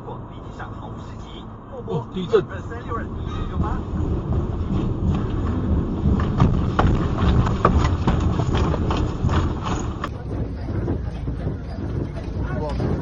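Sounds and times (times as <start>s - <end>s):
low rumble: 0.0s - 13.0s
things shaking and rattling: 3.1s - 13.0s.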